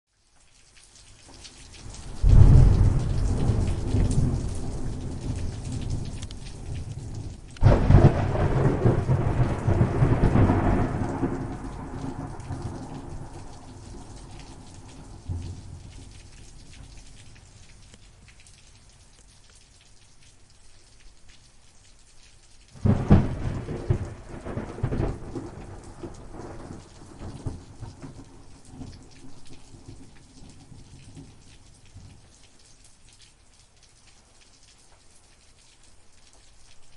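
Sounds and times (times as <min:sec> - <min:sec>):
steady rain: 0:00.1 - 0:36.9
thunderclaps rumbling: 0:01.8 - 0:16.9, 0:22.8 - 0:31.4.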